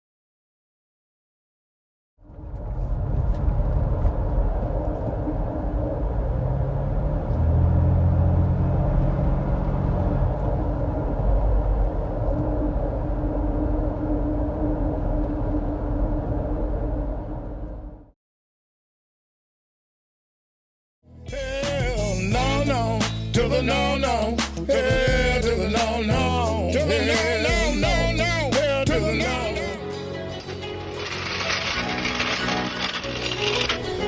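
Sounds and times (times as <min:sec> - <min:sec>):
road rumble: 0:02.2 - 0:18.0
wheel bearing drone: 0:02.2 - 0:18.1, 0:30.3 - 0:34.0.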